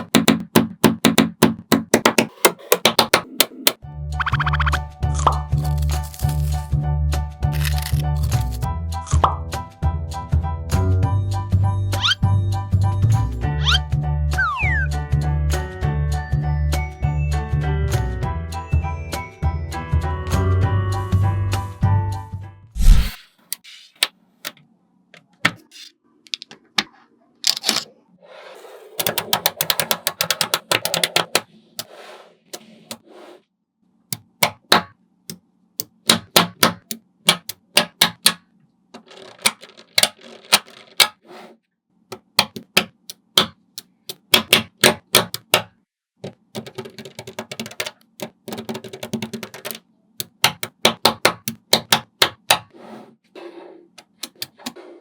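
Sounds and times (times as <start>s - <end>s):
magnetic balls clicking together: 29.0s - 31.5s, 35.8s - 38.4s, 42.1s - 52.6s.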